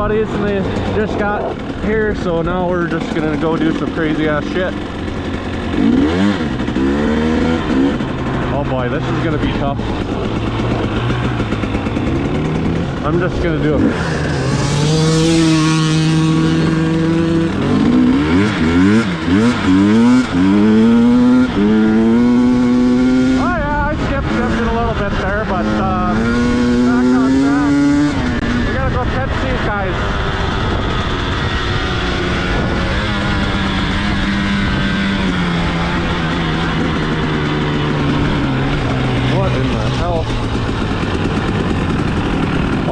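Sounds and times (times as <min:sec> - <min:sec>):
dirt bike engine revving: 0:00.0 - 0:42.9
wind noise: 0:09.4 - 0:42.9.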